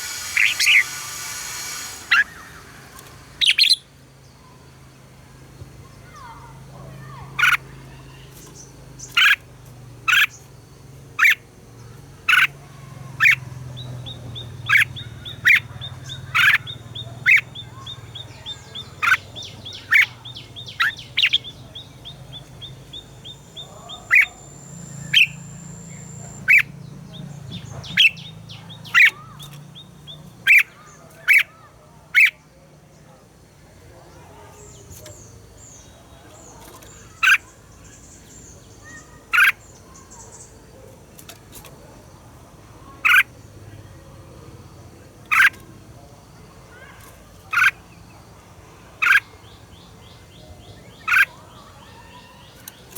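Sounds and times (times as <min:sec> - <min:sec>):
bird calling sharp short notes: 0:00.0 - 0:03.9
fast high bird trill: 0:00.0 - 0:03.9, 0:22.6 - 0:26.7.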